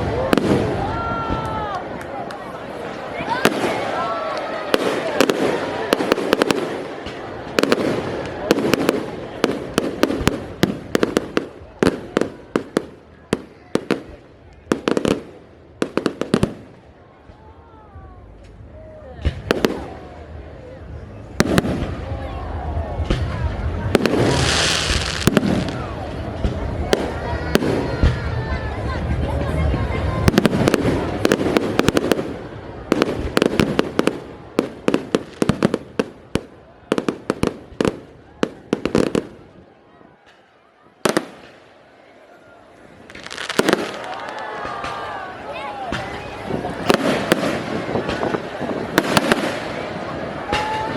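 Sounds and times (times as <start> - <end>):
fireworks bangs: 0.0 - 1.8, 2.8 - 16.9, 21.3 - 22.3, 23.0 - 28.6, 29.3 - 39.6, 40.2 - 41.8, 43.0 - 50.9
fireworks crackle: 2.7 - 16.8, 23.0 - 39.6, 43.0 - 50.9.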